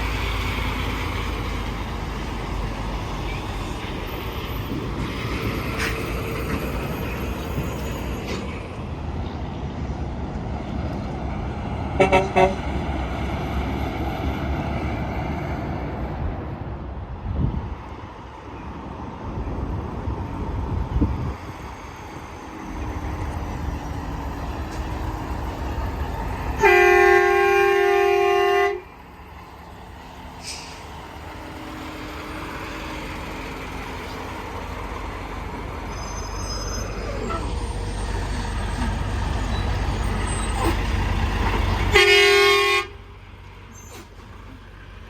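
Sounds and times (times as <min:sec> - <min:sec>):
highway traffic passing: 0:00.0 - 0:45.0
truck air horn blowing: 0:12.0 - 0:12.7, 0:26.6 - 0:28.9, 0:41.9 - 0:43.0.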